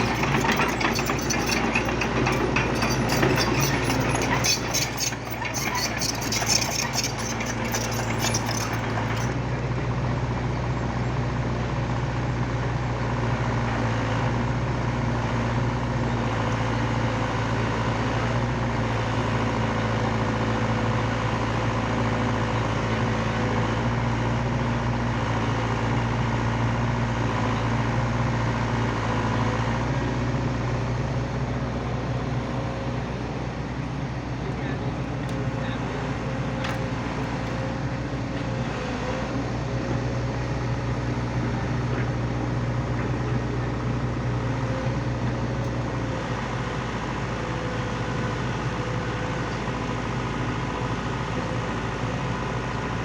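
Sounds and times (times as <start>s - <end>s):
clicking and rattling: 0.0s - 9.4s
excavator diesel engine running: 0.0s - 53.0s.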